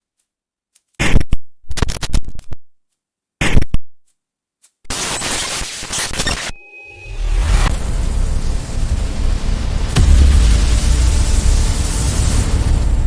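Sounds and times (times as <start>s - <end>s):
electronic static bursts: 1.0s - 2.3s, 3.4s - 3.7s, 4.9s - 13.0s.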